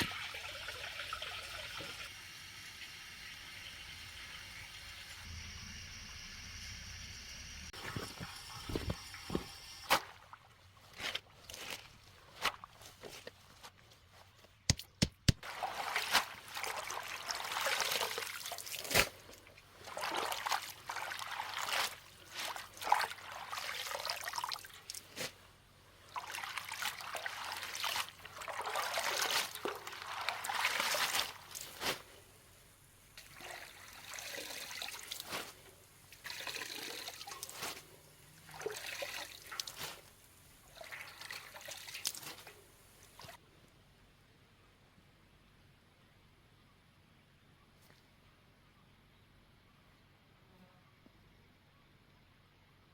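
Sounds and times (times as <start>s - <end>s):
water pouring in spurts: 0.0s - 10.5s, 15.4s - 25.1s, 26.1s - 31.8s, 33.2s - 43.4s.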